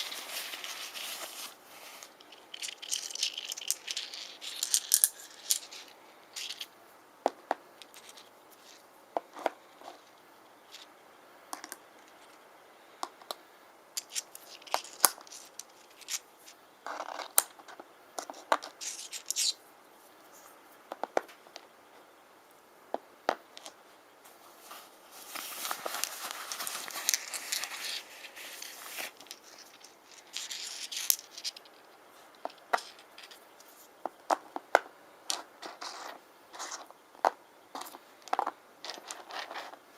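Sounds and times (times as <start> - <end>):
stones clicking together: 2.2 - 6.7.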